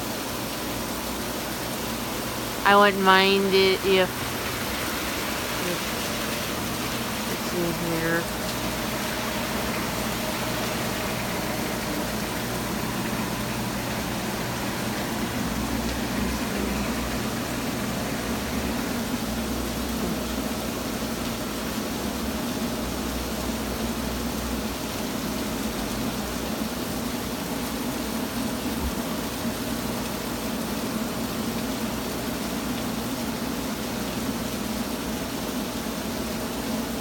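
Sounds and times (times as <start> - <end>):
low steady hum: 0.0 - 22.2
heavy rain hissing: 0.0 - 37.0.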